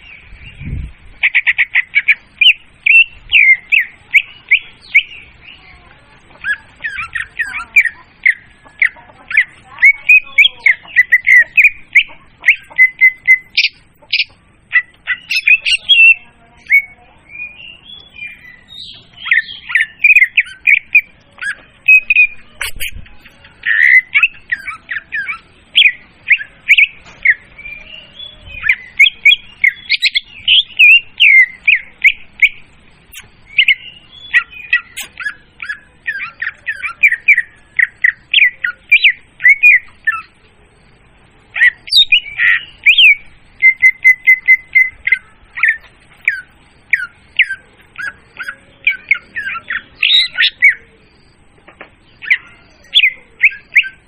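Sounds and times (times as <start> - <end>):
bird song chirps and whistles: 0.0 - 5.6, 6.4 - 51.4, 52.0 - 54.0.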